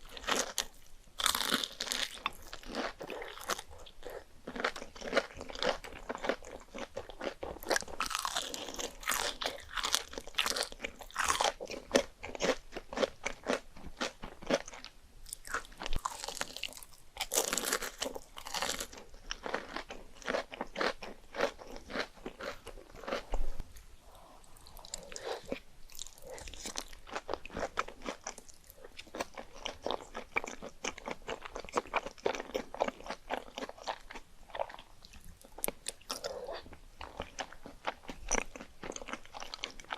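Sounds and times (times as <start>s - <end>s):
crunchy bites: 0.0s - 39.9s
wet chewing: 14.6s - 39.9s.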